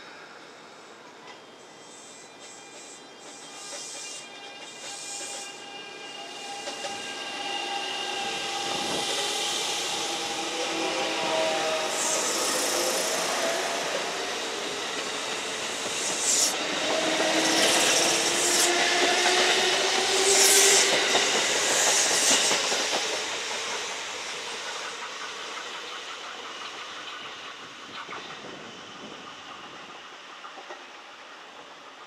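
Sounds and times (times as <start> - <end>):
electric train motors: 0.4 - 32.0
short high hissing bursts: 1.8 - 18.7
train wheels clacking on rail joints: 2.4 - 32.0.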